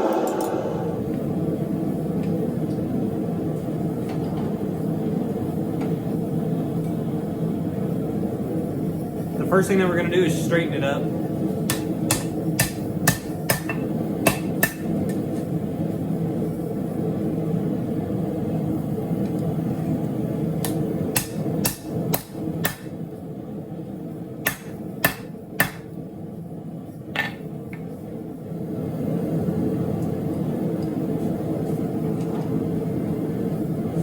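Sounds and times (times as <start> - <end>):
steady low drone: 0.0 - 1.9.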